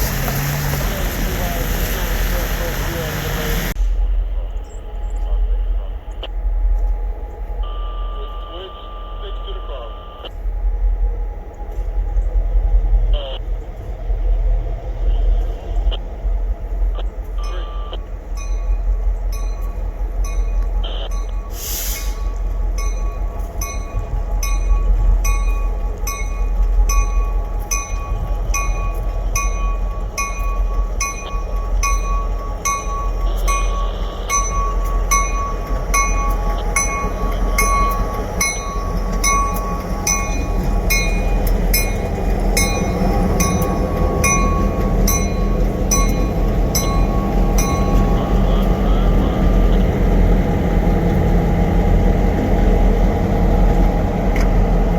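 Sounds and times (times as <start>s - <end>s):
diesel locomotive rumbling: 0.0s - 54.9s
locomotive bell ringing: 4.4s - 12.9s, 17.3s - 54.0s
brief air hiss: 21.5s - 22.3s.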